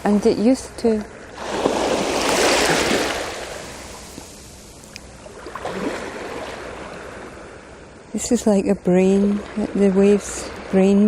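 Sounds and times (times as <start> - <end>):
sea wave breaking in shallow water: 1.3 - 4.7, 5.3 - 7.3.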